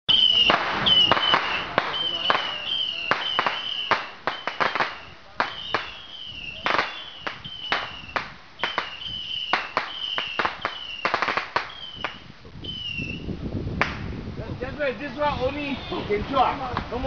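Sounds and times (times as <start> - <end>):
firecracker bangs: 0.1 - 13.2, 13.8 - 14.2
falling firework whistles: 0.1 - 14.0
firework crackling: 0.1 - 17.0.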